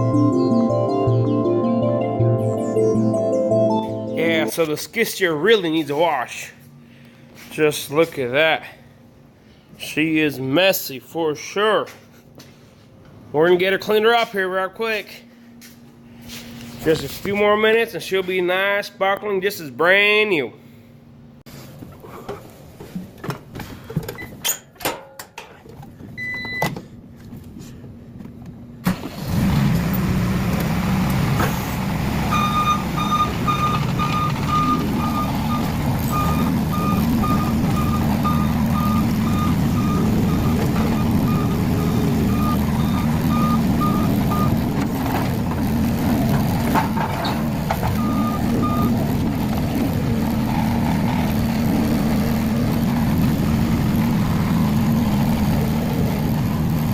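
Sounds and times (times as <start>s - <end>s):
backup alarm beeping: 26.2s - 26.7s, 32.3s - 44.7s, 47.9s - 49.0s
skid steer engine running: 29.1s - 56.9s.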